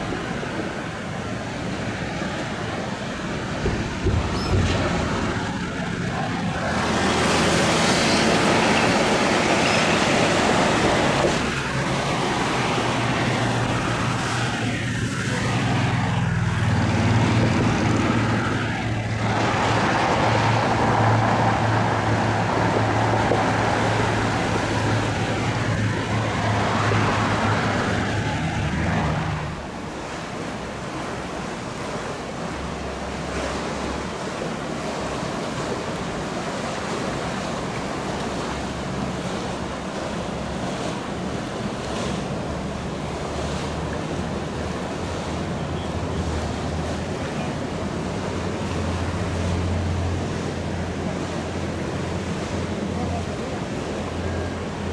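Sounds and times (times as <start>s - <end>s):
powerboat engines droning: 0.0s - 54.9s
water wash: 0.0s - 54.9s
wind noise: 8.9s - 30.4s.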